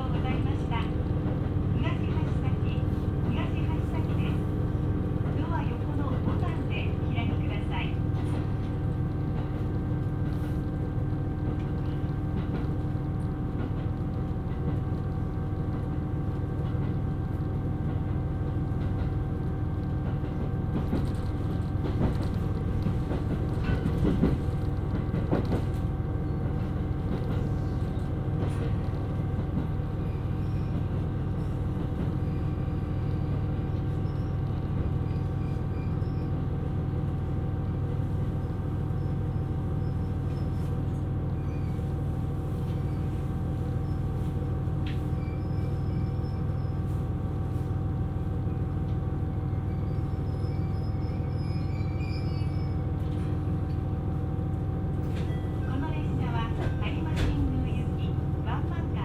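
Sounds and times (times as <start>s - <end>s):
diesel railcar engine rumble: 0.0s - 59.0s
train wheel knocks: 20.0s - 25.8s.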